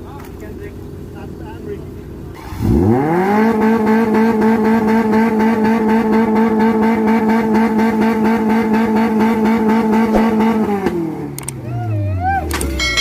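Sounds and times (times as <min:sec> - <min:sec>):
engine at high revs pulsing: 0:02.4 - 0:11.7.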